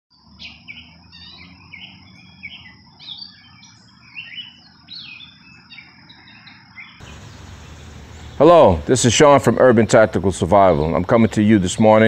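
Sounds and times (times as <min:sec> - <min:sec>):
birds chirping: 0:00.1 - 0:12.0
low background rumble: 0:07.0 - 0:10.7.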